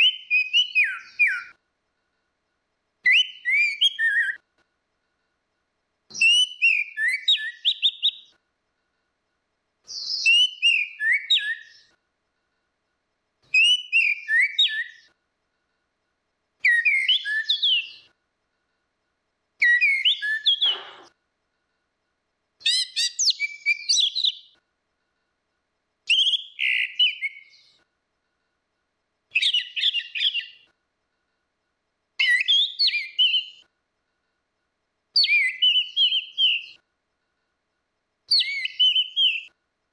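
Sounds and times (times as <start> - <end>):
thrush singing whistled phrases: 0.0 - 1.6, 3.0 - 4.4, 6.1 - 8.4, 9.9 - 12.0, 13.5 - 15.1, 16.6 - 18.1, 19.6 - 21.1, 22.6 - 24.6, 26.1 - 27.6, 29.3 - 30.7, 32.2 - 33.7, 35.2 - 36.8, 38.3 - 39.6.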